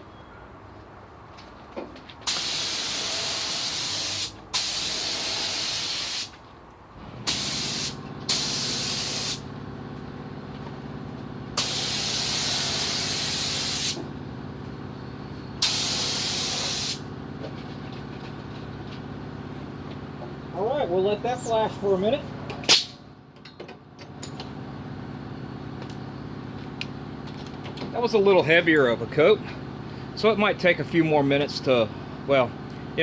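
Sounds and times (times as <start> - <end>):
spray gun hissing air: 2.3 - 6.3, 7.3 - 9.4, 11.6 - 14.0, 15.6 - 17.0.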